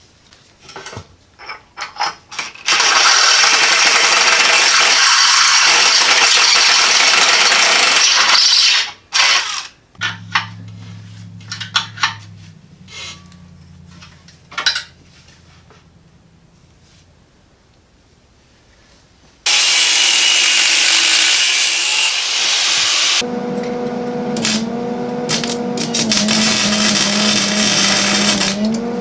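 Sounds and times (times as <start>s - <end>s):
harsh power tool on metal: 2.7s - 10.4s, 19.5s - 29.0s
faint low hum: 9.9s - 19.3s
metal clanks and knocks: 10.0s - 16.2s.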